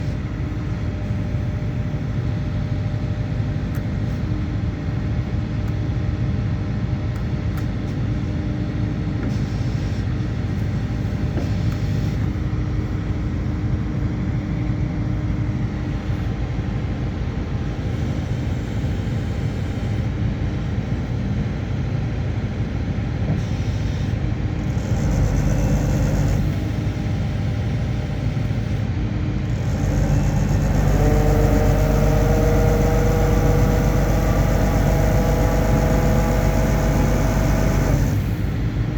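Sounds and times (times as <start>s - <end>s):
drilling rig engine running: 23.8s - 38.9s.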